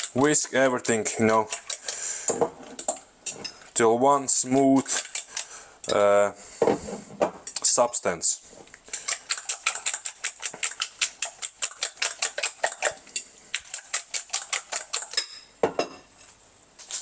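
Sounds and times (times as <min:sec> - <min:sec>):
fork whisking in a bowl: 0:00.0 - 0:06.0, 0:08.9 - 0:15.4.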